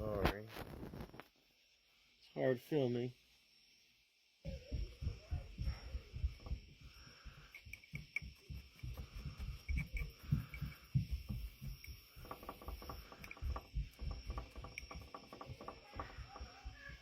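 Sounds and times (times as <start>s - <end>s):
fine crackles: 0.2s - 1.3s.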